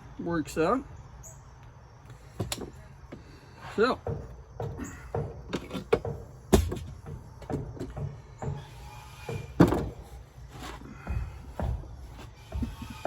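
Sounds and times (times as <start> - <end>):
hard objects knocking: 4.0 - 8.7.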